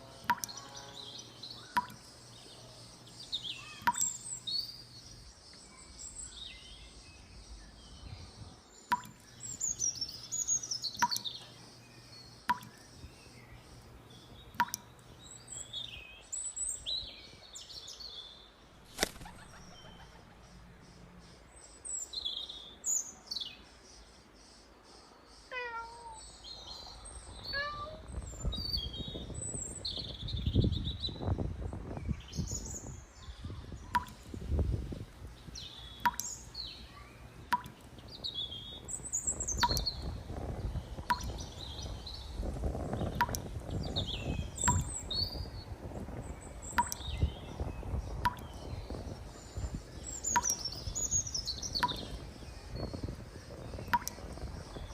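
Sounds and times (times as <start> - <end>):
birds chirping: 0.0 - 54.9
sharp clicks: 14.5 - 15.0, 43.2 - 43.4.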